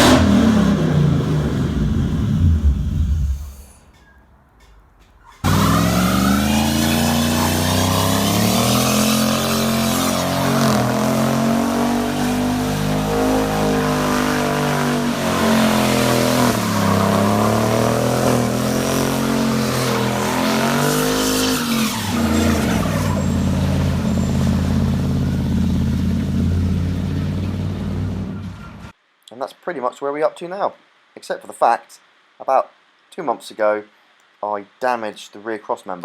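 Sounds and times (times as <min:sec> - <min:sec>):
engine revving: 0:00.0 - 0:04.0, 0:05.4 - 0:28.9.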